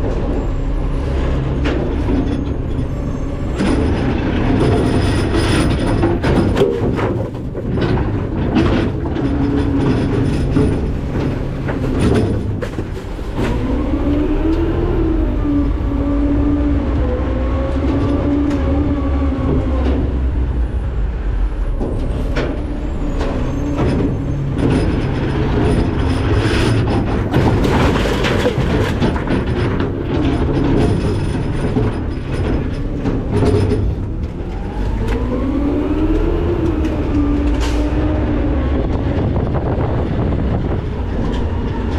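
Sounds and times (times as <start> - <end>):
trash crunching: 0.0 - 14.7, 21.6 - 41.9
garbage truck engine revving: 0.0 - 41.9
metal clanks: 1.6 - 13.8, 21.7 - 35.3.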